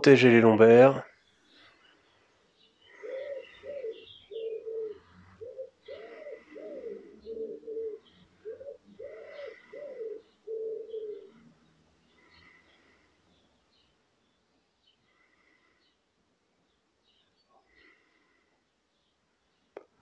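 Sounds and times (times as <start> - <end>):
small birds chirping: 1.0 - 20.0
bird cooing: 2.8 - 13.0.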